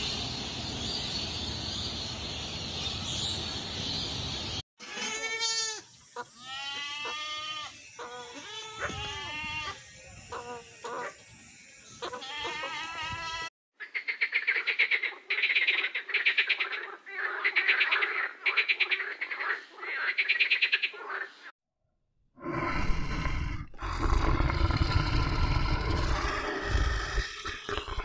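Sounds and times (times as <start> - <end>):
goat kid bleating: 4.8 - 9.8, 12.0 - 13.5
fast rattling animal call: 23.8 - 28.0.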